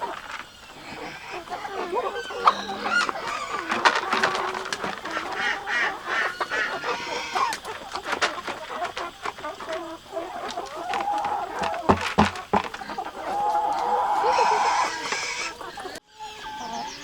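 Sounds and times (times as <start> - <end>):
poultry calling: 0.0 - 17.0
sharp clicks and knocks: 7.3 - 13.1.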